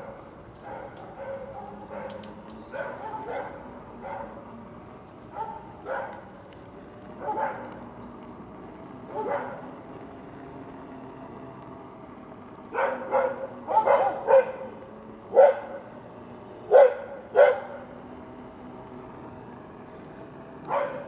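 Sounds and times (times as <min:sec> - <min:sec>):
dog yipping and barking: 0:00.7 - 0:04.3, 0:07.2 - 0:07.6, 0:09.1 - 0:09.6, 0:12.7 - 0:14.7, 0:15.4 - 0:15.8, 0:16.7 - 0:17.8, 0:20.7 - 0:21.0.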